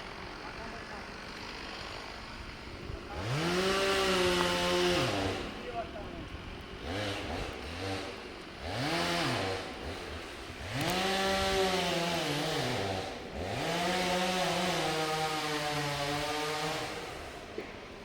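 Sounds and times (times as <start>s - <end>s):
chainsaw engine revving: 0.0s - 17.8s.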